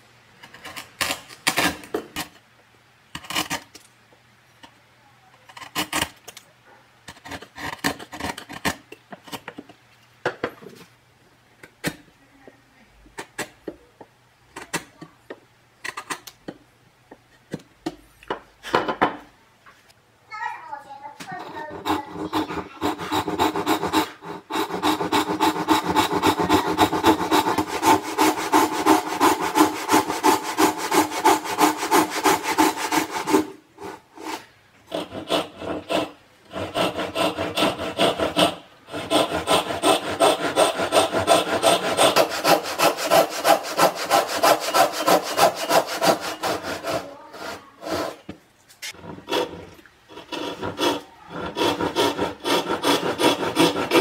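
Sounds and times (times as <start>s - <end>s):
hand saw cutting wood: 21.3s - 54.0s.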